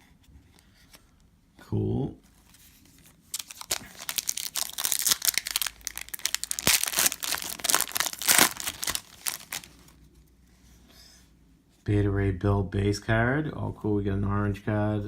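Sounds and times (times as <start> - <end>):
plastic wrapping crinkling: 2.9 - 10.0.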